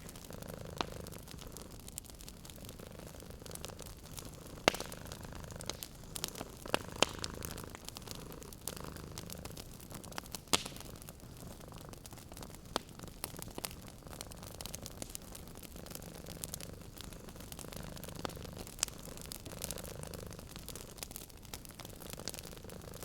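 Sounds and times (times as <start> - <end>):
cat purring: 0.0 - 23.0
wood fire crackling: 0.0 - 23.0.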